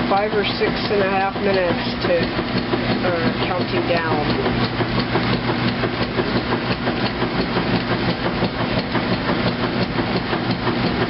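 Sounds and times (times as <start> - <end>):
washing machine running: 0.0 - 11.0.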